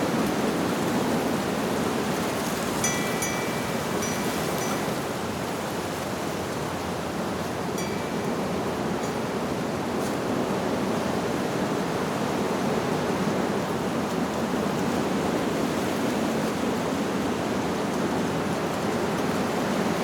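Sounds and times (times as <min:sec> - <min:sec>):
wind blowing through leaves: 0:00.0 - 0:20.0.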